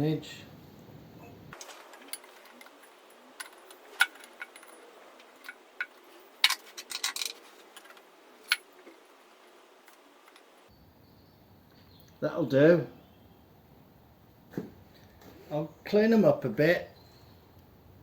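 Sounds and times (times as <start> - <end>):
metal parts and tools clinking: 1.5 - 10.7.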